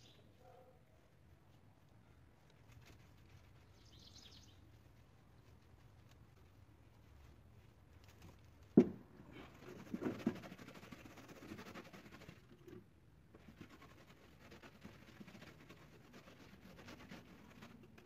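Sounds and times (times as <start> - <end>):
soft scratching strokes: 0.0 - 8.7, 9.3 - 18.0
knocks on wood: 8.8 - 9.0.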